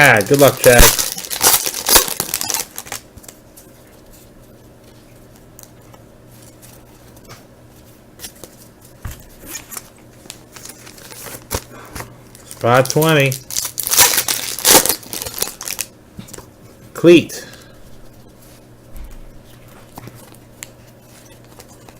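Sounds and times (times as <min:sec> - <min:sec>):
low electrical hum: 0:00.0 - 0:21.9.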